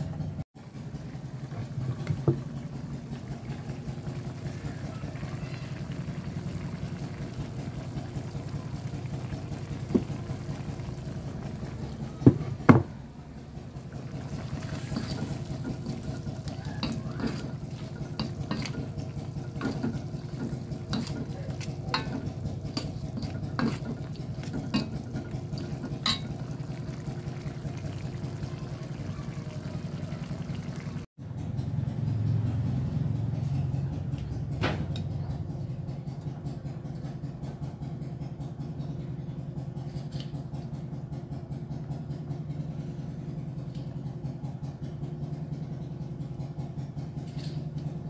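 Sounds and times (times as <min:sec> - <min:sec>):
metal utensil clinking in pan: 0:20.9 - 0:25.0, 0:25.6 - 0:26.4.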